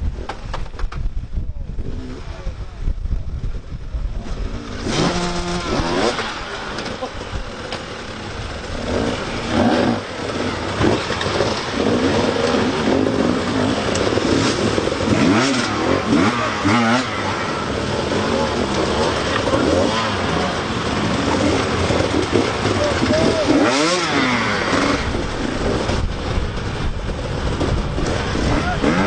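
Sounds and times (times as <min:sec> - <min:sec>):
motorcycle engines revving: 0:00.0 - 0:29.0.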